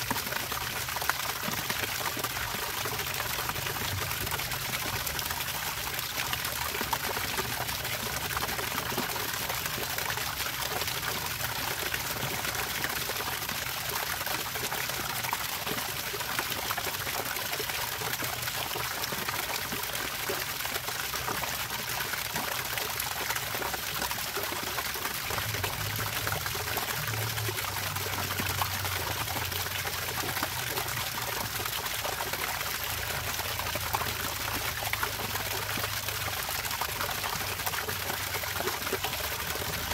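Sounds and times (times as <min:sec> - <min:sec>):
water trickling and pouring: 0:00.0 - 0:39.9.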